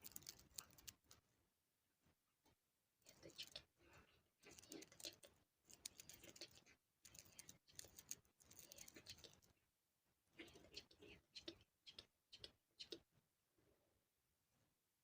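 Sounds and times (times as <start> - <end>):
crisp clicking and tapping: 0.0 - 1.2, 4.4 - 9.5.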